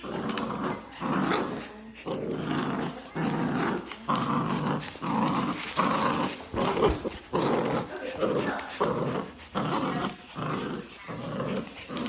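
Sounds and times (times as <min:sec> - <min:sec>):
dogs growling: 0:00.0 - 0:12.0.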